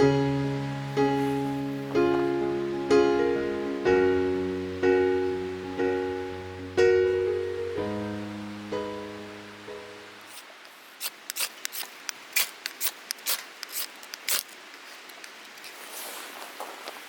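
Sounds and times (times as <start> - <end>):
faint rustling hiss: 0.0 - 17.0
sharp clicks or snaps: 10.2 - 15.6.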